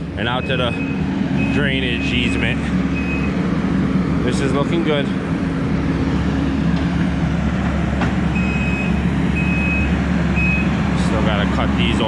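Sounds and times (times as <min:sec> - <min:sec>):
heavy machine engine running: 0:00.0 - 0:12.0
backup alarm beeping: 0:00.2 - 0:03.4, 0:08.3 - 0:10.7.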